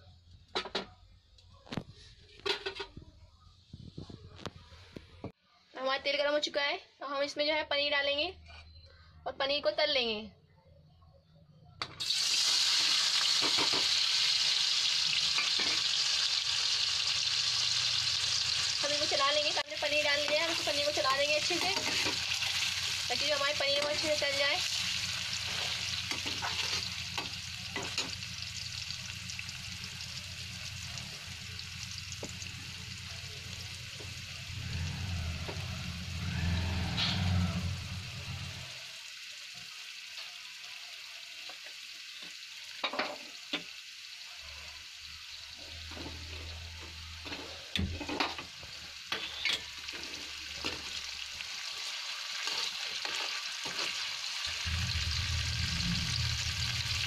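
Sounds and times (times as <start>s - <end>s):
cheese cubes sizzling in oil: 12.0s - 57.0s
spoon knocking and scraping pan: 13.3s - 14.0s, 15.4s - 15.9s, 21.4s - 22.6s, 25.4s - 28.2s, 52.4s - 54.1s.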